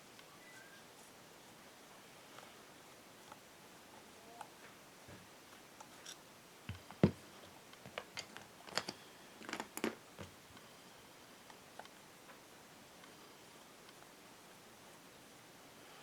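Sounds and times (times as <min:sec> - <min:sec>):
clicks and knocks of tools and parts: 0:07.8 - 0:10.3.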